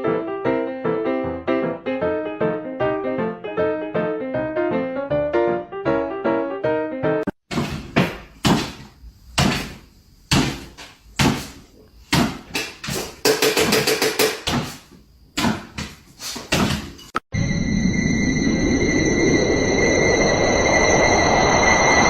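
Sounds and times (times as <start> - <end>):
sharp knocks: 7.5 - 14.8, 15.4 - 17.0.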